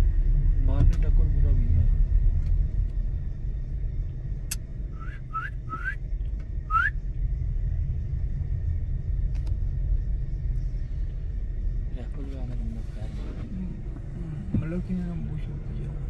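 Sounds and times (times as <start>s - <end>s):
car engine rumble: 0.0s - 16.0s
short rising whistles: 4.9s - 6.0s, 6.7s - 7.0s.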